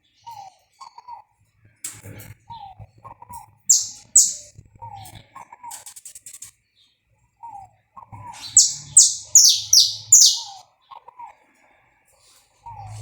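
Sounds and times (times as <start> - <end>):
finch singing sharp high notes: 3.7 - 4.4, 8.5 - 10.6
low short bird note: 8.6 - 10.5.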